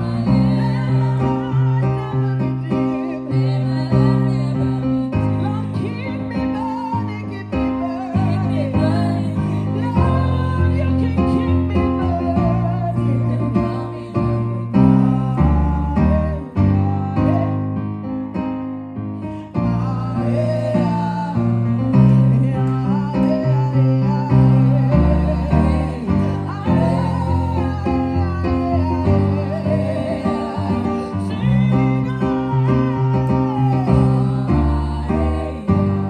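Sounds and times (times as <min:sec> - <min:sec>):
people singing: 0:00.0 - 0:17.6, 0:19.5 - 0:36.0
bass line: 0:00.0 - 0:18.2, 0:19.0 - 0:36.0
keyboard chords: 0:24.1 - 0:36.0.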